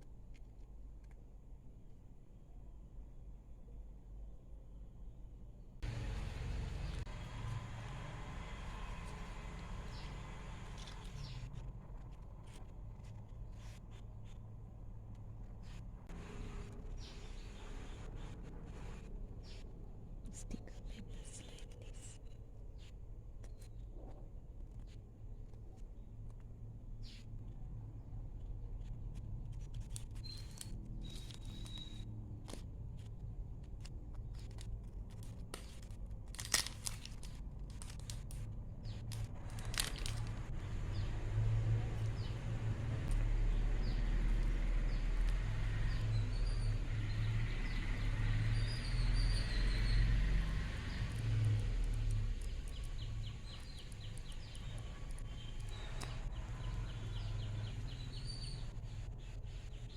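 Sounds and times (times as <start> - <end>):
paper rustling and tapping: 29.5 - 40.5.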